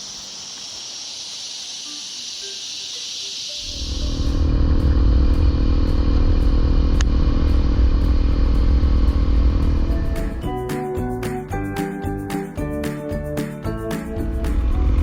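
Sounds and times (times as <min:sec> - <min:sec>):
music: 0:03.7 - 0:15.0
motorcycle engine running: 0:03.8 - 0:10.4.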